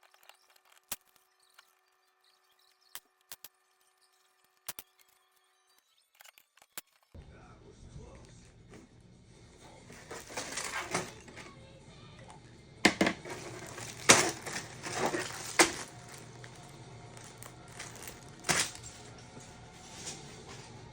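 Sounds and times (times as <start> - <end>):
plastic bricks clicking and clattering: 12.9 - 19.0.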